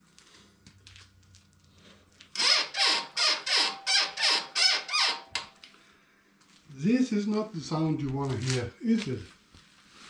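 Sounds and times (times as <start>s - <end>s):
motorcycle suspension squeaking: 2.4s - 5.4s.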